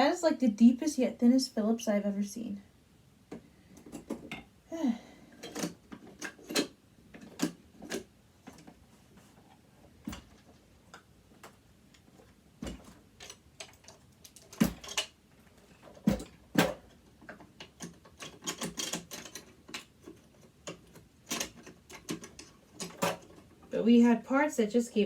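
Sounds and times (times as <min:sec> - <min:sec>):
loose metal parts tapping: 0:05.3 - 0:08.8, 0:09.4 - 0:23.7.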